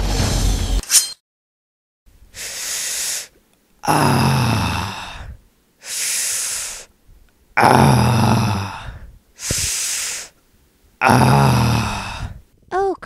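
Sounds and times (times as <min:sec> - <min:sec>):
music: 0:00.0 - 0:00.8
man breathing heavily: 0:02.3 - 0:07.0, 0:07.6 - 0:10.4, 0:11.3 - 0:12.5.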